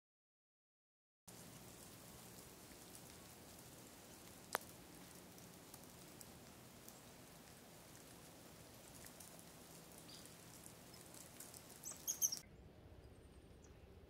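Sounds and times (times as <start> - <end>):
freezing rain pattering: 1.3 - 12.4.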